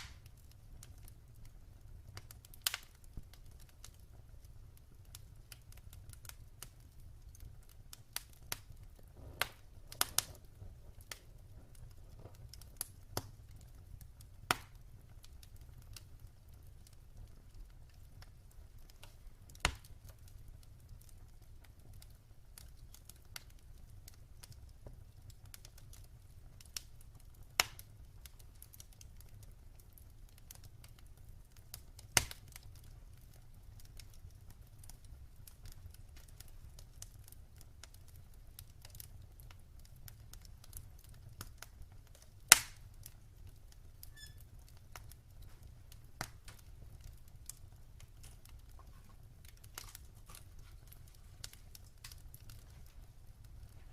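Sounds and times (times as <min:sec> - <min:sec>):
sharp fire pops: 0:00.0 - 0:01.5, 0:02.2 - 0:04.0, 0:05.1 - 0:16.1, 0:17.9 - 0:23.6, 0:27.5 - 0:29.0, 0:31.7 - 0:33.2, 0:40.4 - 0:43.2
wood fire crackling: 0:00.0 - 0:53.9.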